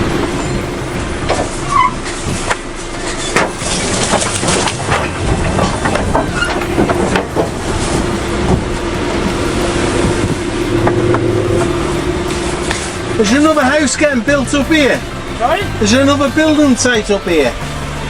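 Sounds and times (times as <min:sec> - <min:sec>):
sharp knocks and rattles: 0:00.0 - 0:13.1
lorry running from inside cab: 0:00.0 - 0:15.6.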